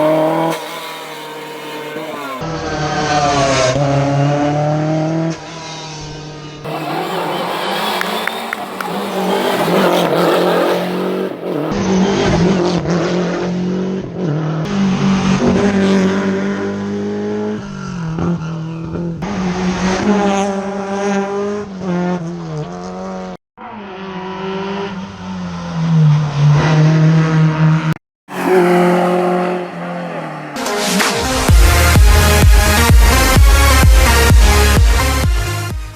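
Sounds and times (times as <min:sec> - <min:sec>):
rally car engines revving: 0:00.0 - 0:35.2
tyre squeal: 0:06.7 - 0:11.8.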